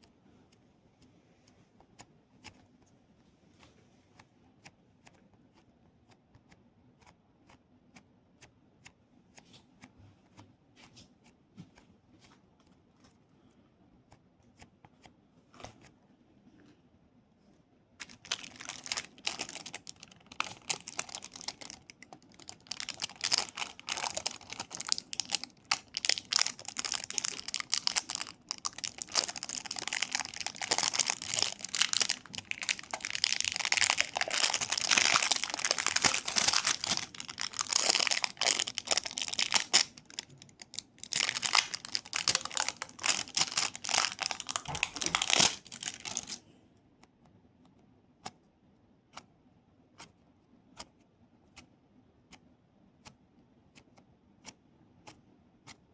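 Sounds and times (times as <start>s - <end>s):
crinkling and clicking objects: 18.0s - 46.4s.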